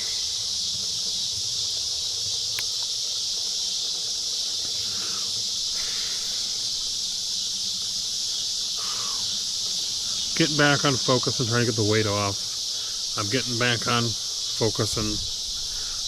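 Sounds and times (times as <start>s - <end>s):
cicadas droning: 0.0s - 16.0s
sharp click: 2.6s - 2.9s.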